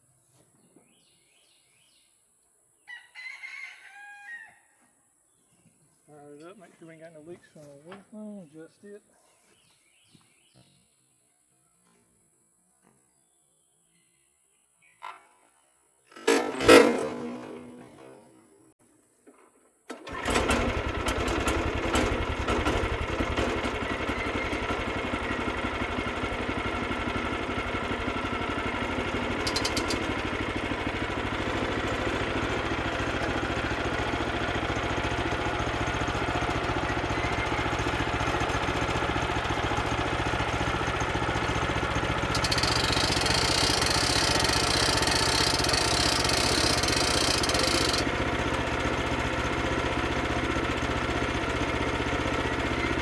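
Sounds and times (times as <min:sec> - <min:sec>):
small engine starting and idling: 0:16.1 - 0:53.0.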